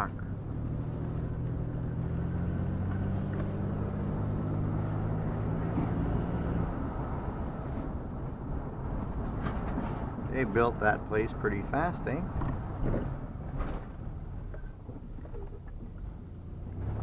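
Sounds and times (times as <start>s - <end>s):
road rumble: 0.0s - 17.0s
vehicle engine drone: 0.0s - 17.0s.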